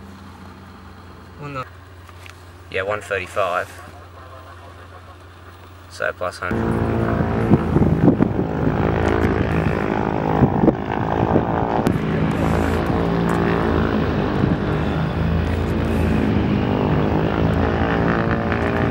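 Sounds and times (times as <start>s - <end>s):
propeller plane engines droning: 0.0s - 18.9s.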